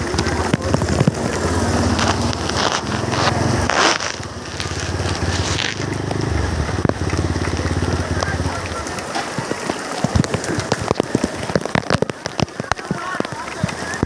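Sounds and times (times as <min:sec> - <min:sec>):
motorcycle engine running: 0:00.0 - 0:11.4
rain hiss: 0:00.0 - 0:14.0
raindrops hitting microphone: 0:00.0 - 0:14.0.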